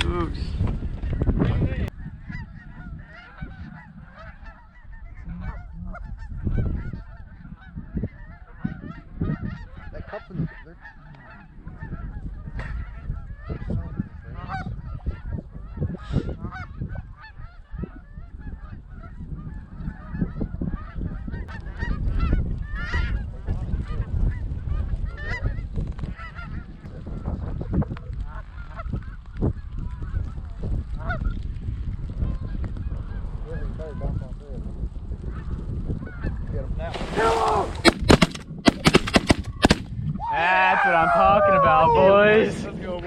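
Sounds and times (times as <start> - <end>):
wind on microphone: 0.0 - 43.0
geese honking: 2.0 - 23.2.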